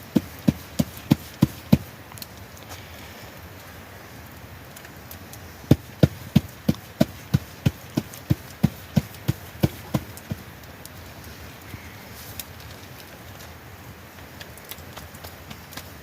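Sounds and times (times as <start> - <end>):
evenly spaced knocks: 5.7 - 10.4.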